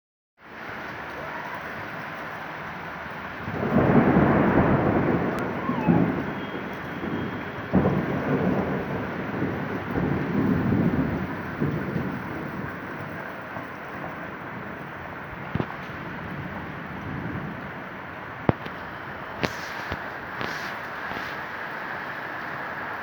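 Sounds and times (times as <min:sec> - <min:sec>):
steady rain: 0:00.4 - 0:23.0
thunder rumbling: 0:00.6 - 0:23.0
thunder crack: 0:03.2 - 0:21.2.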